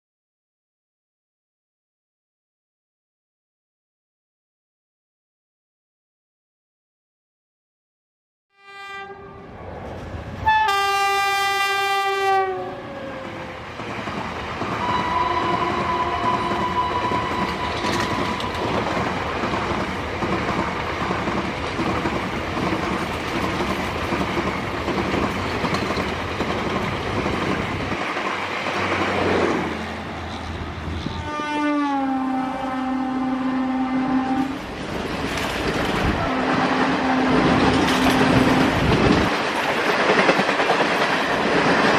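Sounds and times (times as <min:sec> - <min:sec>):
locomotive horn blasts: 0:08.5 - 0:09.5, 0:10.4 - 0:12.9, 0:14.8 - 0:18.6, 0:31.0 - 0:34.6, 0:36.2 - 0:38.6
train rumble: 0:09.4 - 0:31.6, 0:34.1 - 0:41.9
train wheels clattering on rails: 0:13.8 - 0:29.7, 0:34.5 - 0:41.9.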